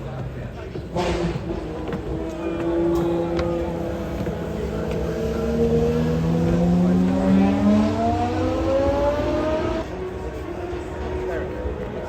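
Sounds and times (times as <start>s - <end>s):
car engine accelerating hard: 1.0s - 10.1s.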